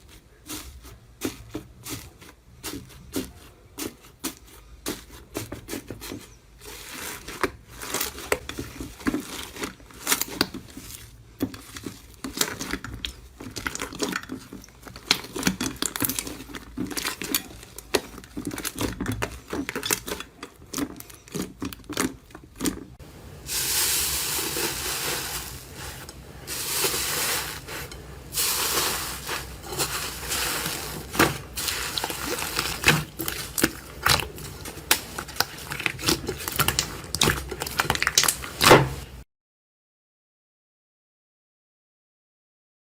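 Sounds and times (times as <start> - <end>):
hands crushing crunchy material: 0.0 - 38.9.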